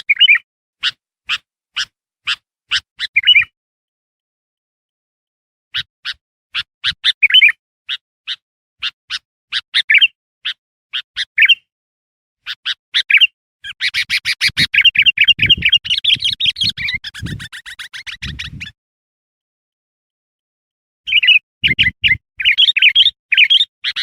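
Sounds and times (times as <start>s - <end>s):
bulbul chirping and chattering: 0.1s - 3.5s, 12.5s - 18.7s, 21.1s - 24.0s.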